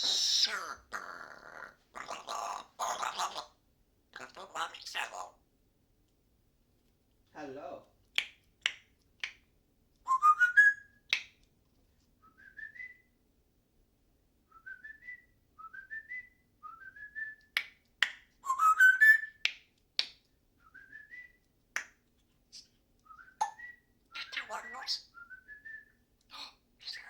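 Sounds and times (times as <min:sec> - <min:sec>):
parrot whistling: 0:10.1 - 0:11.0, 0:18.4 - 0:19.4, 0:23.1 - 0:25.9.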